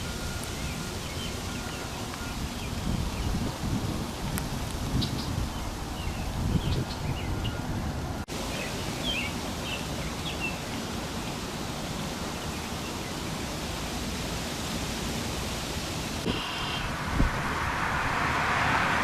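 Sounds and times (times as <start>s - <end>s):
steady outdoor rushing noise: 0.0s - 19.0s
bird chirps: 8.5s - 10.7s.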